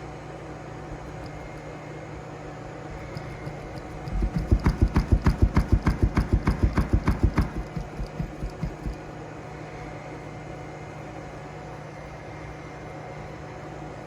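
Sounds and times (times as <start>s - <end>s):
low hum: 2.8s - 9.0s
subwoofer thumping: 4.0s - 9.0s.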